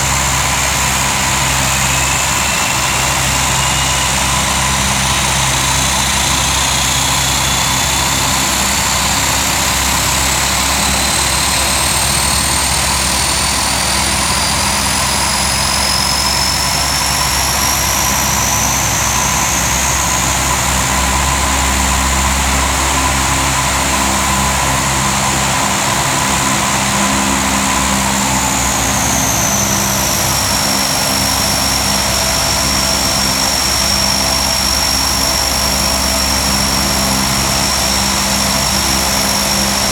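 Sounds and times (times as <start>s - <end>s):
high turbine whine: 0.0s - 39.9s
turboprop engines droning: 0.0s - 39.9s.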